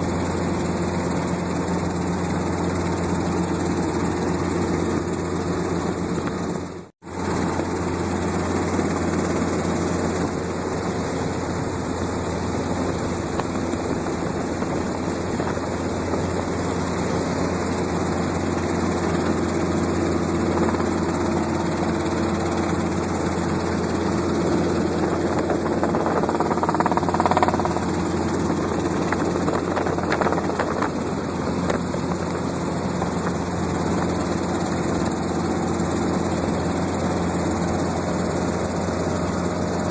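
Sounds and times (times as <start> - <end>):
helicopter drone from inside cabin: 0.0 - 39.9.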